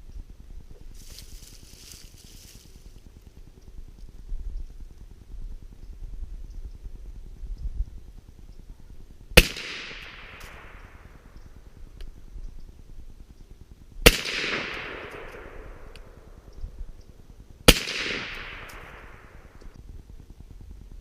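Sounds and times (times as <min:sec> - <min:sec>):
gunshot echo: 0:09.4 - 0:11.3, 0:14.0 - 0:16.2, 0:17.7 - 0:19.6
suppressed rifle shots: 0:09.4 - 0:11.7, 0:14.0 - 0:16.5, 0:17.6 - 0:19.8.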